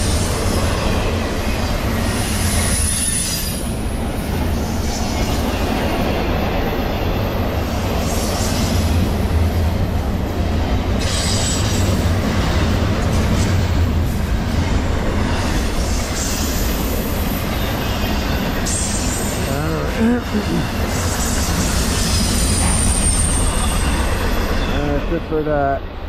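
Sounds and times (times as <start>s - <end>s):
freight train wheels rumbling on rail: 0.0s - 26.0s
high-pitched wheel squeal: 21.1s - 24.9s.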